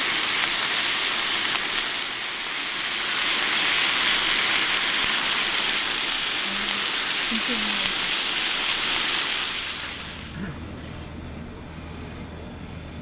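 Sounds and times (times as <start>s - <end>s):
meat sizzling on grill: 0.0s - 10.4s.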